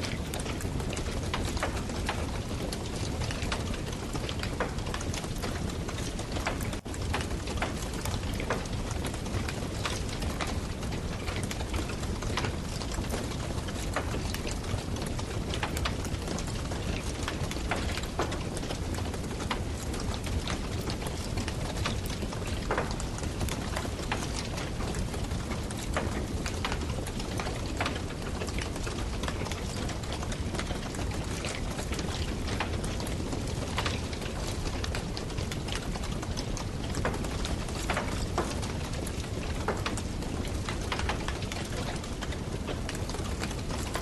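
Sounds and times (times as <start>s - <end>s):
campfire crackling and popping: 0.0s - 44.0s.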